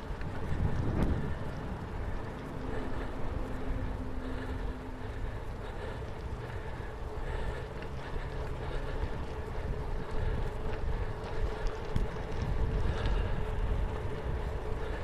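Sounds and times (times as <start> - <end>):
wind on microphone: 0.0 - 5.2, 9.1 - 15.0
bicycle tyres rumbling on gravel: 0.0 - 15.0
faint steady hum: 0.0 - 15.0.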